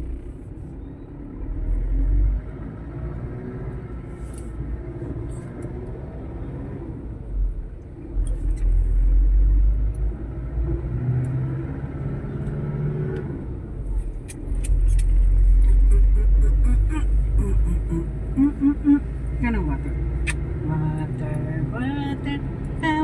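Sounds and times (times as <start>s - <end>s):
vehicle engine and road noise: 0.0s - 23.0s.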